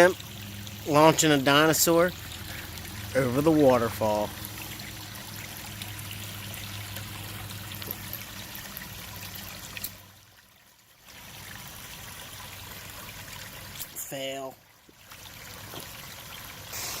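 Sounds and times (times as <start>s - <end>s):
waterfall and creek rushing: 16.7s - 17.0s.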